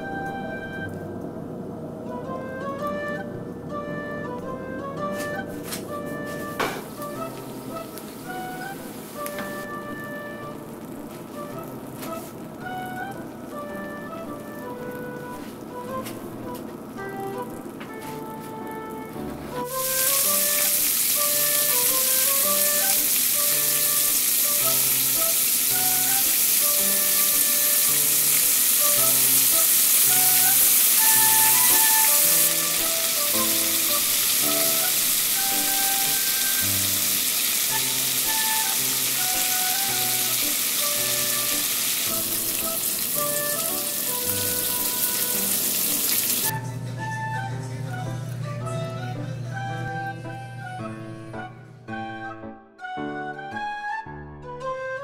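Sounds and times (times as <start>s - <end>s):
background music: 0.0s - 55.0s
food sizzling in a frying pan: 19.7s - 46.5s.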